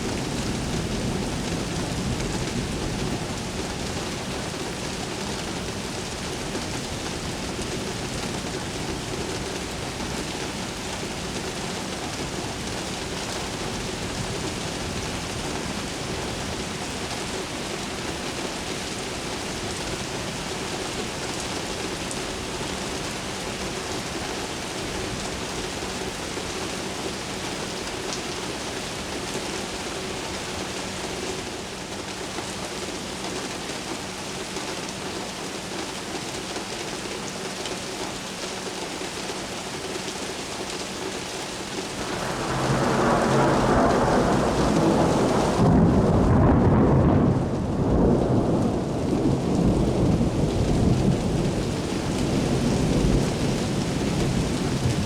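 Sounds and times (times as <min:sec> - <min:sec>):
steady rain: 0:00.0 - 0:55.0
thunder rumbling: 0:41.7 - 0:55.0.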